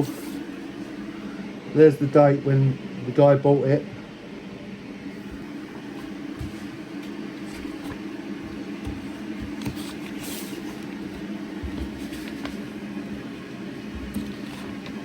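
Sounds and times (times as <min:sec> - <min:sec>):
washing machine running: 0:00.0 - 0:02.0, 0:04.9 - 0:15.0.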